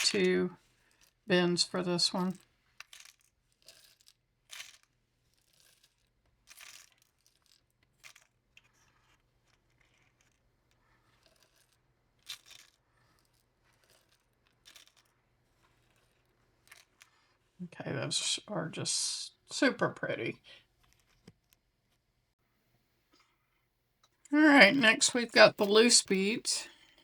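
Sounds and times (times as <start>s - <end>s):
beads clicking and rattling: 0.0s - 1.2s, 2.2s - 17.4s.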